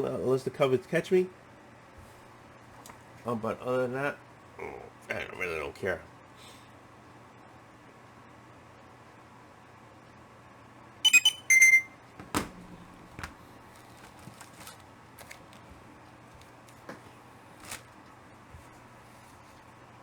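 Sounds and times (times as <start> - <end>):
high-pitched bursts: 11.1 - 11.9
thump: 12.2 - 12.7
comic books being handled: 12.2 - 19.7.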